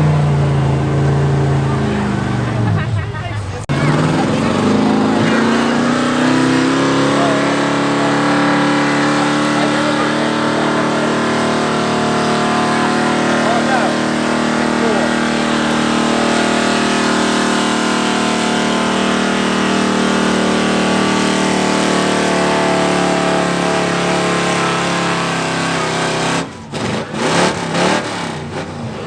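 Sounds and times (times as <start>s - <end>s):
truck engine revving under load: 0.0s - 29.0s.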